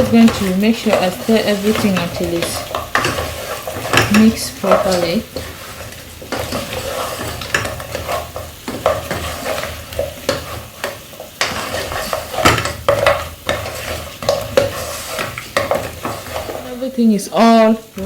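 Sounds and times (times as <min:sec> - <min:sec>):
utensil scraping a pan: 0:00.0 - 0:16.8
frying sizzle: 0:00.0 - 0:18.0.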